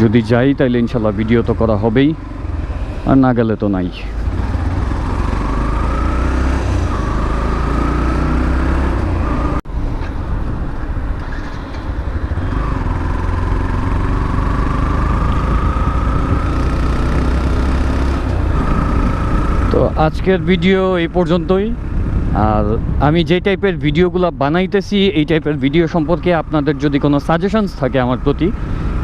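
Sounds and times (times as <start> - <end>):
motorcycle engine at speed: 0.0 - 10.1, 11.2 - 23.1, 25.4 - 29.0
wind on microphone: 9.1 - 13.2, 18.2 - 19.7, 21.8 - 24.1.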